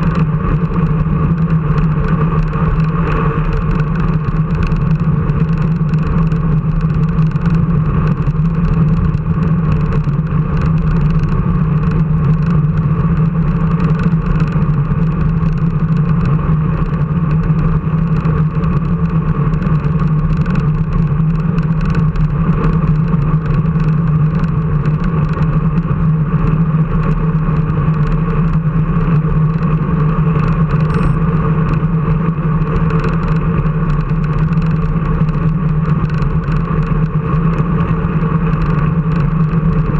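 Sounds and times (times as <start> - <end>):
steady engine drone: 0.0 - 39.9
faint small ticks: 32.8 - 37.6.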